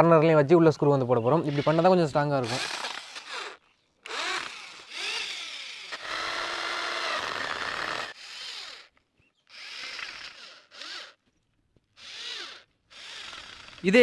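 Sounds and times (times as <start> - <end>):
power drill motor whine: 2.4 - 8.9, 9.5 - 11.2, 12.0 - 13.9.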